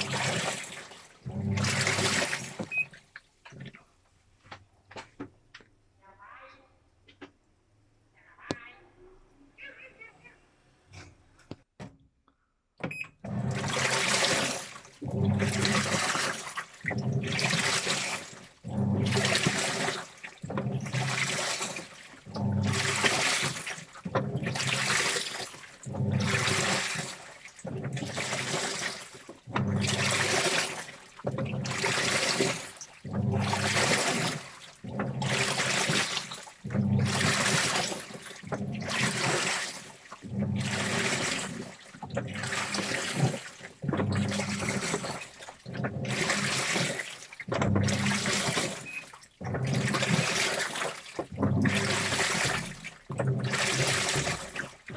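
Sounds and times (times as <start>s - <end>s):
water and clothes sloshing in drum: 0.0s - 4.0s, 12.9s - 54.9s.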